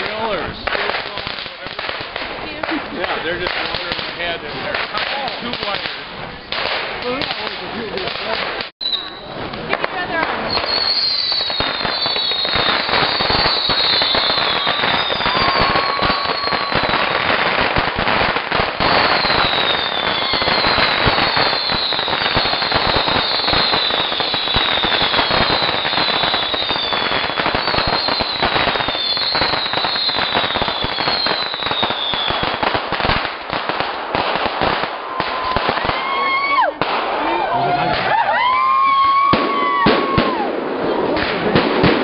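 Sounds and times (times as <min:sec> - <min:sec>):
fireworks crackling and popping: 0:00.0 - 0:42.0
falling firework whistles: 0:08.8 - 0:09.6, 0:10.4 - 0:33.3.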